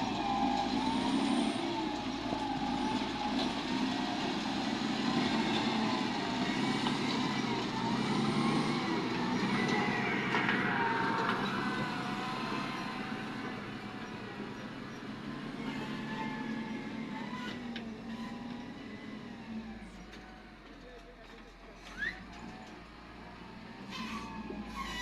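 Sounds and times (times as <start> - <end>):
heavy diesel engine running: 0.0 - 25.0.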